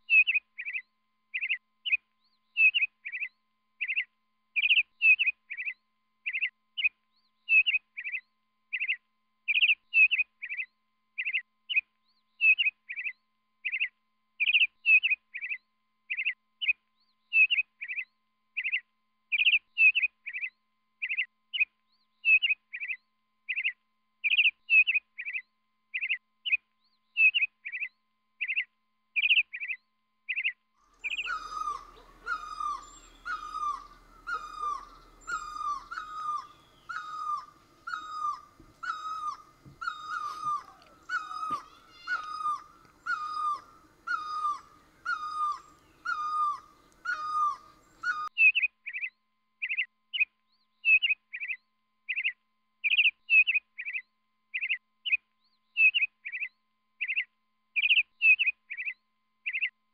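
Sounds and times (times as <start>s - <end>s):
small bird chirping: 18.6s - 25.4s, 26.0s - 54.0s, 54.6s - 59.7s
barbet calling: 31.0s - 48.3s.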